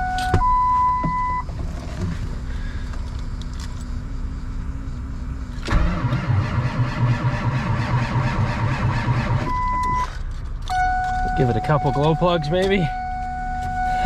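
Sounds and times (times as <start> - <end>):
starter cranking diesel engine: 5.5 - 11.7.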